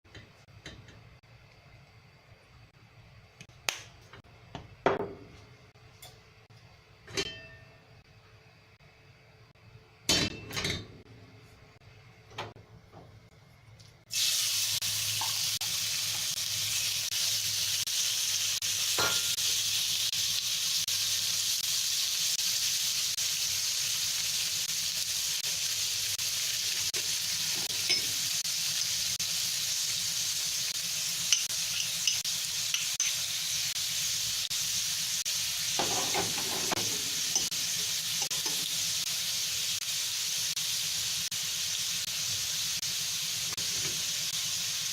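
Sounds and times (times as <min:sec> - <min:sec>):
food sizzling in a pan: 0:14.1 - 0:44.9
utensil scraping a pan: 0:35.8 - 0:37.5.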